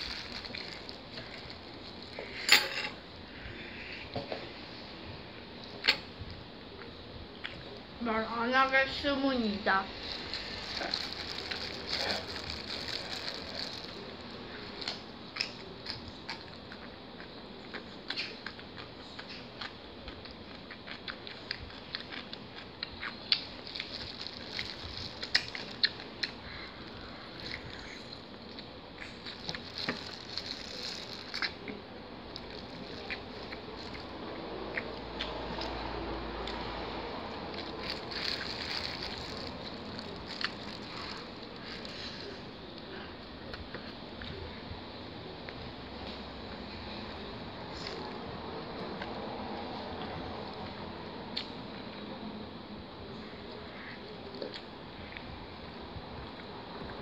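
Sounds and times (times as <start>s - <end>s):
plastic gloves crinkling: 0.0s - 2.4s, 10.0s - 14.9s, 23.3s - 26.2s, 28.4s - 31.6s, 32.2s - 34.1s, 37.4s - 42.4s
chewing: 10.2s - 44.4s.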